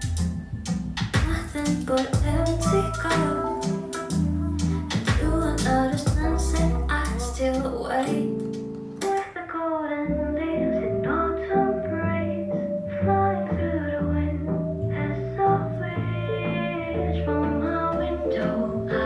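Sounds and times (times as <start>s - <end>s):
pop song over loudspeakers: 1.0s - 19.0s.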